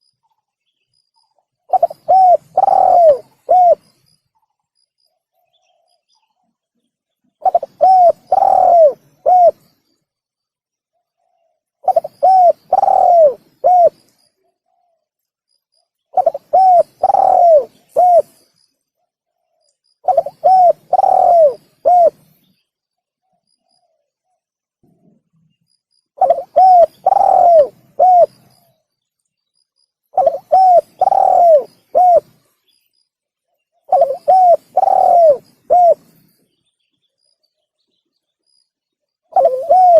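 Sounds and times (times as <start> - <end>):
dove cooing: 1.7 - 3.9, 7.4 - 9.7, 11.2 - 14.0, 16.1 - 18.4, 20.0 - 22.3, 26.2 - 28.7, 30.1 - 32.5, 33.8 - 36.2, 39.3 - 39.9.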